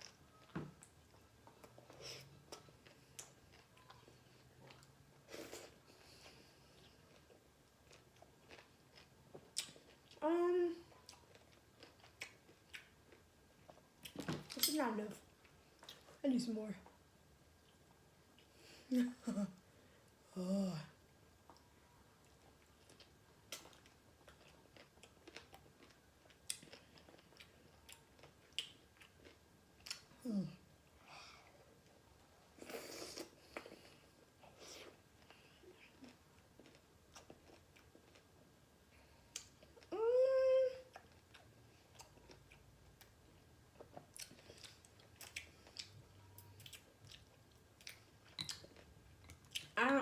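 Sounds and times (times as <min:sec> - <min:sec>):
chewing with wet mouth clicks: 0:00.0 - 0:05.0, 0:06.8 - 0:10.2, 0:10.9 - 0:14.7, 0:21.4 - 0:30.1, 0:34.8 - 0:38.4, 0:39.3 - 0:39.9, 0:40.9 - 0:49.8
crunchy chewing: 0:01.5 - 0:10.2.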